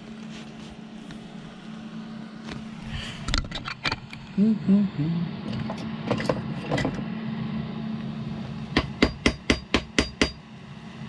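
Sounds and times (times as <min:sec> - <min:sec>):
hammer striking metal: 0:08.8 - 0:10.4.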